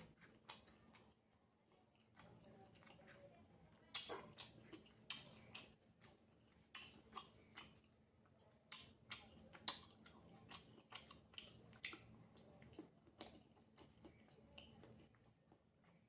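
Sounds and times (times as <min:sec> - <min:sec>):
wet chewing mouth sounds: 0:00.0 - 0:16.0.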